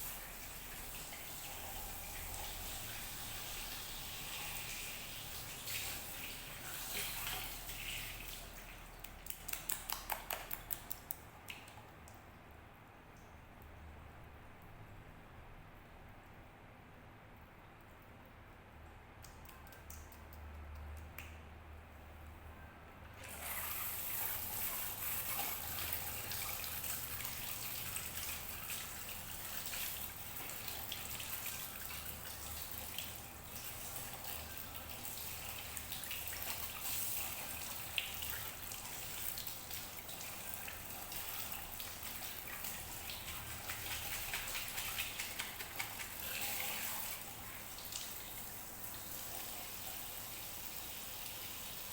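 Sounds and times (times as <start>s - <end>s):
water running from a tap: 0.0s - 8.8s, 23.2s - 51.9s.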